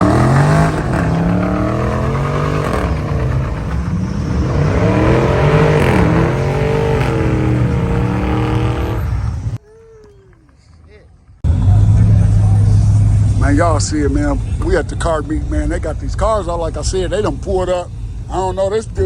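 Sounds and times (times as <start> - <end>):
car engine revving: 0.0 - 9.6, 11.4 - 19.0.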